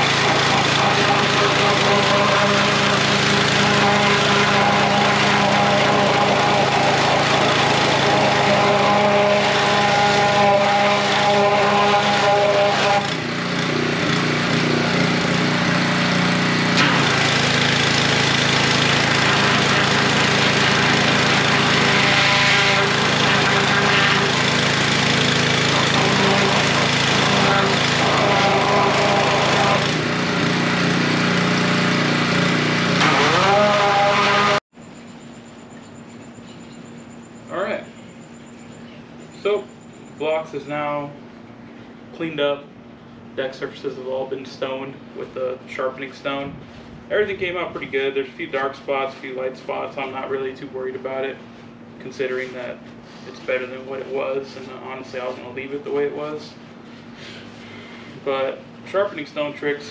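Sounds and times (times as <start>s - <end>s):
pressure washer engine running: 0.0s - 34.7s.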